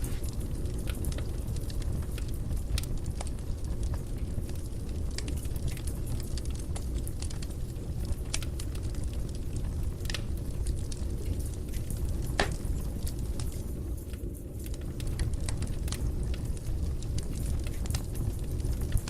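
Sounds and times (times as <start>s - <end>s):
fire burning in a fireplace: 0.0s - 19.0s.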